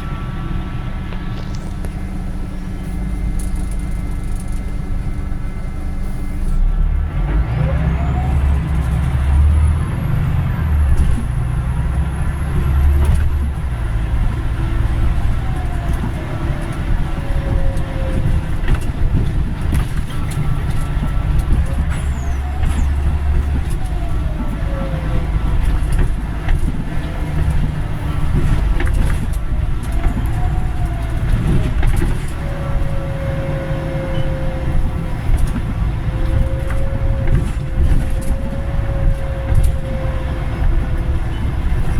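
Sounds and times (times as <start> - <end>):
bus engine rumbling: 0.0 - 41.9.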